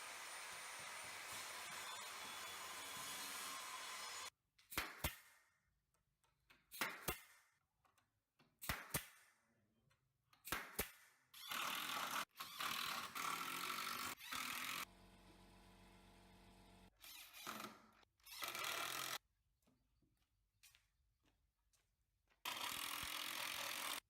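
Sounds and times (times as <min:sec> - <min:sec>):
power tool running: 0:00.0 - 0:04.3, 0:22.5 - 0:24.0.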